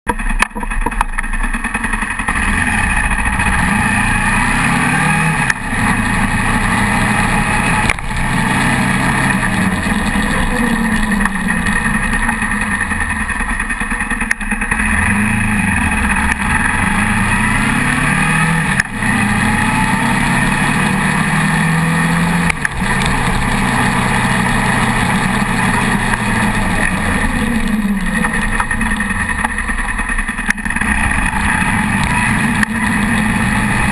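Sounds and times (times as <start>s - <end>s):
motorcycle engine revving: 0.1s - 33.9s
wind and road noise: 0.1s - 33.9s.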